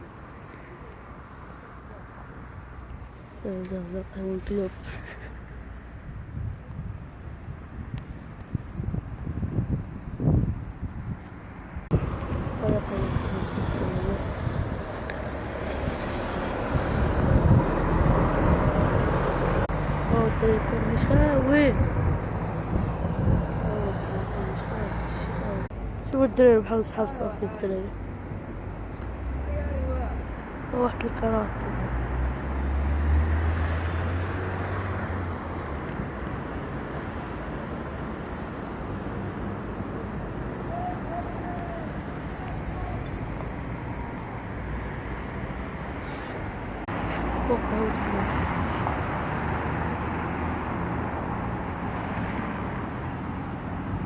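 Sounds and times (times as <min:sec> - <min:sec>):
rushing traffic or wind: 0:00.0 - 0:54.0
wind buffeting microphone: 0:04.8 - 0:27.0
vehicle motor rumble: 0:07.8 - 0:26.4.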